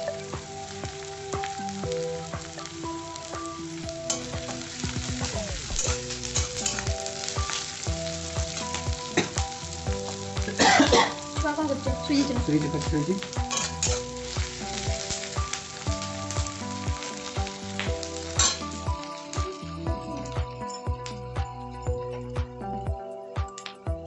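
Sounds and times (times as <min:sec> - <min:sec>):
onions sizzling in oil: 0:00.0 - 0:22.6
spatula scraping and clinking pan: 0:04.1 - 0:04.5, 0:05.7 - 0:06.9, 0:13.5 - 0:14.3, 0:18.3 - 0:18.7.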